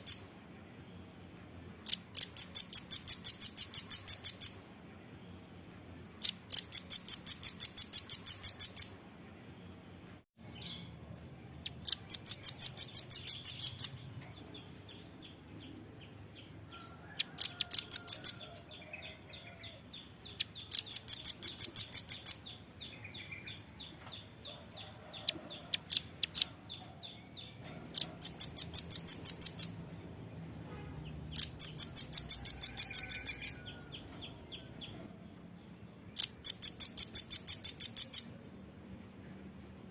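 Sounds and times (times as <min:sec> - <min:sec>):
faint ticking bird chatter: 0:01.8 - 0:04.6, 0:11.6 - 0:29.8, 0:30.6 - 0:35.0, 0:35.9 - 0:39.8
bird calling in rattling series: 0:11.6 - 0:14.4, 0:17.0 - 0:18.6, 0:20.4 - 0:22.6, 0:24.0 - 0:29.8, 0:30.4 - 0:35.0, 0:36.1 - 0:38.4.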